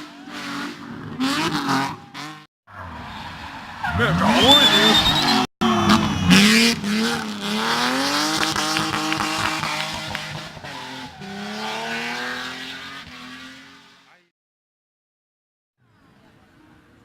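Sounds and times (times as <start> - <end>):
race car engine revving: 0.0 - 14.3
exhaust cracks: 5.6 - 11.2.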